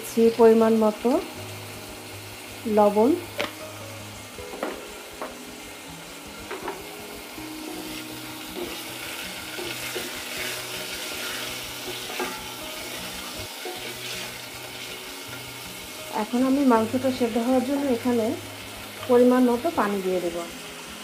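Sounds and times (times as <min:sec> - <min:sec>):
chicken sizzling in oil: 0:00.0 - 0:21.0
spatula scraping a pan: 0:07.7 - 0:15.6.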